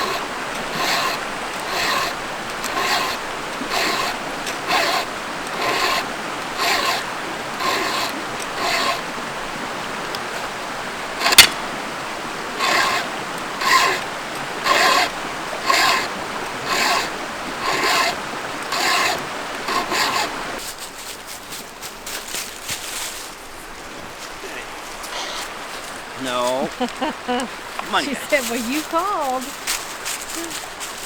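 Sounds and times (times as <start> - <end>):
file rasping on chainsaw chain: 0.0 - 9.2, 10.2 - 11.7, 12.5 - 21.2, 25.0 - 26.5, 27.8 - 31.0.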